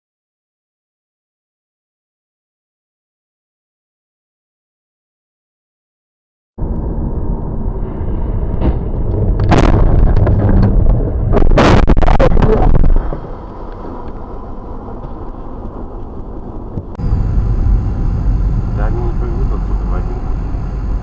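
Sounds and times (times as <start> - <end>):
engine and road rumble: 6.6 - 21.0
loud crashing impacts: 8.0 - 12.7.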